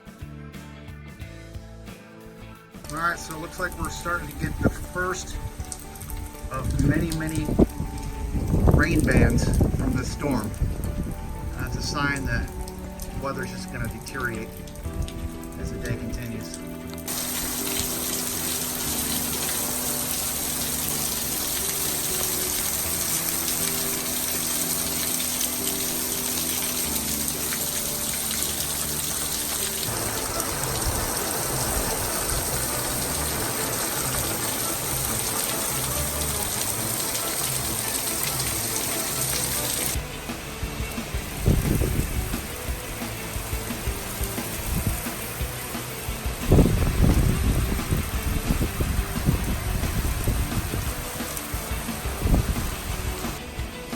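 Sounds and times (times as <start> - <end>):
background music: 0.0 - 53.9
heavy rain pouring: 2.8 - 53.9
wind gusts: 4.4 - 13.8, 29.8 - 38.5, 40.3 - 45.2, 46.1 - 53.4.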